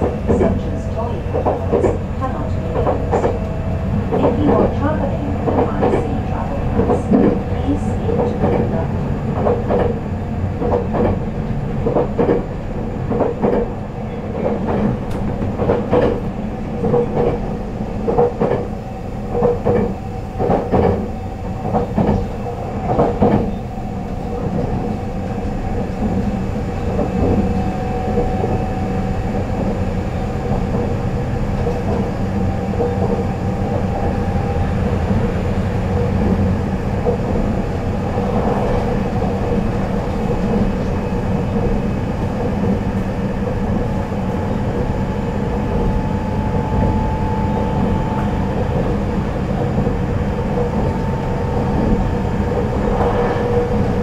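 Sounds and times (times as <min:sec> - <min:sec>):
train wheels clacking over rail joints: 0:00.0 - 0:10.0, 0:10.6 - 0:17.4, 0:18.0 - 0:18.7, 0:19.3 - 0:23.6
steady train rumble: 0:00.0 - 0:54.0.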